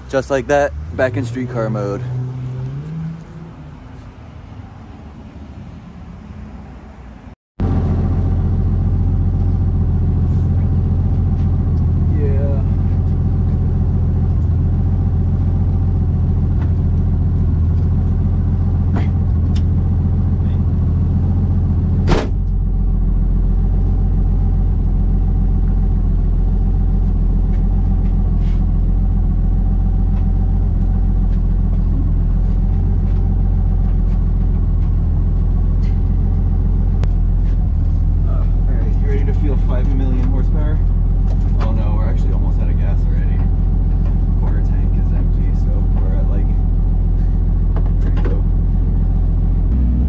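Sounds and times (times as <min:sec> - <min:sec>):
car engine idling: 0:07.6 - 0:50.0
loud thump: 0:21.9 - 0:22.6.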